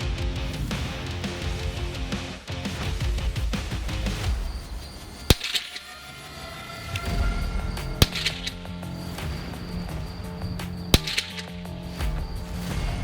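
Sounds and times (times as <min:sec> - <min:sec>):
background music: 0:00.0 - 0:13.0
rifle shots: 0:05.2 - 0:05.9, 0:07.0 - 0:12.6.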